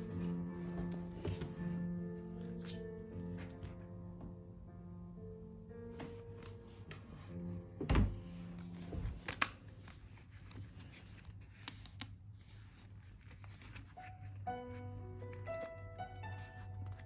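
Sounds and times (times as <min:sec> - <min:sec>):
soft background music: 0:00.0 - 0:17.0
soft thump: 0:07.8 - 0:08.2
paper rustling: 0:08.6 - 0:15.8, 0:16.4 - 0:17.0.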